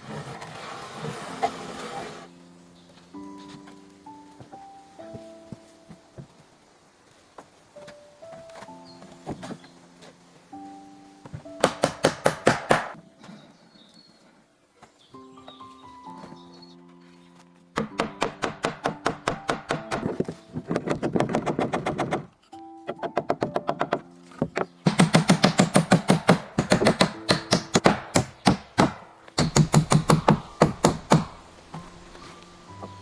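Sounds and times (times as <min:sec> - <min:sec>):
soft background music: 0:00.0 - 0:33.0
rapid sharp knocks: 0:24.8 - 0:31.3.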